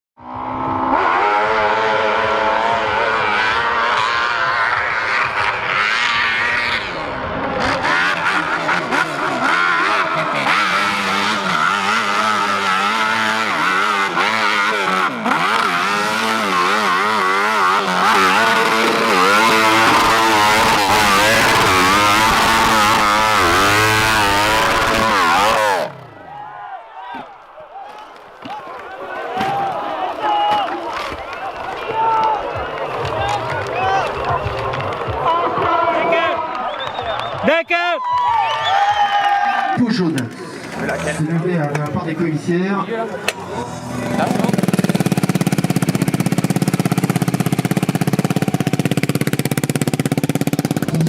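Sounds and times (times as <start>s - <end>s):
motorcycle engine revving: 0.2s - 26.3s, 40.2s - 51.0s.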